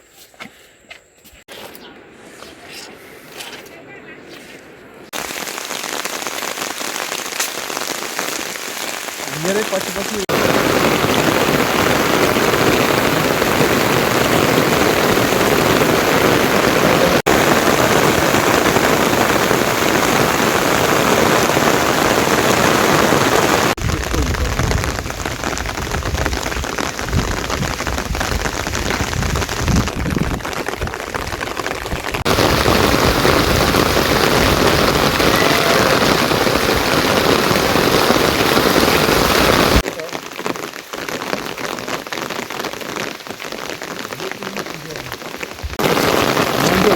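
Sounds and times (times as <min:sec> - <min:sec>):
heavy rain falling: 0:05.1 - 0:46.9.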